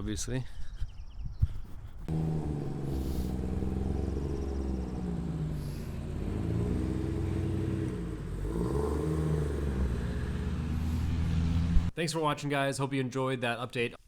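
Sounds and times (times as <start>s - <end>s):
car engine revving: 2.1s - 11.9s.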